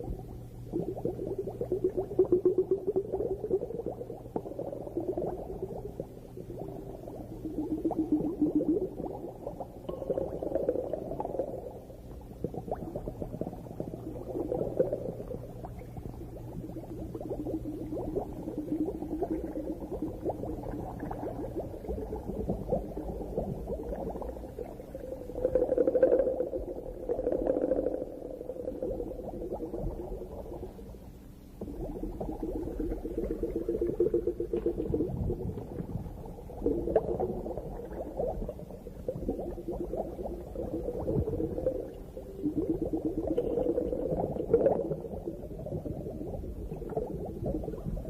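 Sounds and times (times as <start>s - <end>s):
underwater bubbling and crackling: 0.0s - 48.0s.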